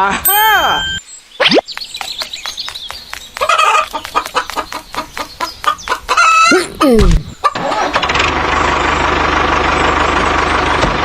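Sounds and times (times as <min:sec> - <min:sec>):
chicken clucking: 0:03.4 - 0:08.0.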